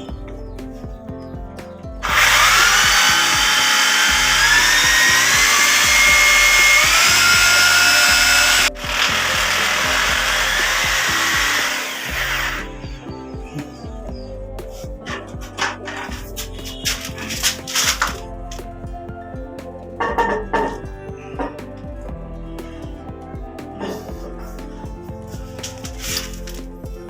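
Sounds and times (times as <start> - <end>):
electric drill whining: 2.0 - 13.0.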